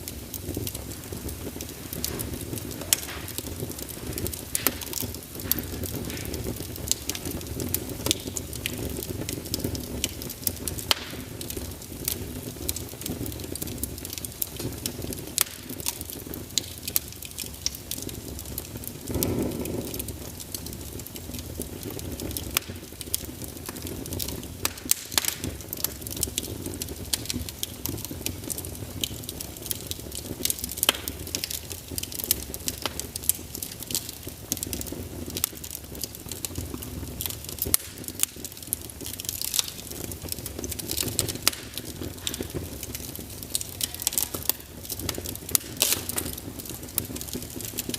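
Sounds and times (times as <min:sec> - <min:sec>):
fire whoosh: 0:00.0 - 0:10.9, 0:18.8 - 0:21.1
hiss of flames: 0:00.0 - 0:47.9
logs crackling and popping: 0:00.0 - 0:47.9.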